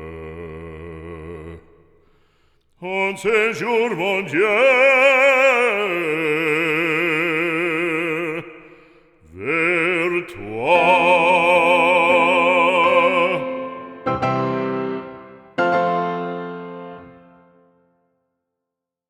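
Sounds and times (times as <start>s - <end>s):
operatic voice singing with vibrato: 2.8s - 15.2s
piano chords: 10.6s - 18.0s.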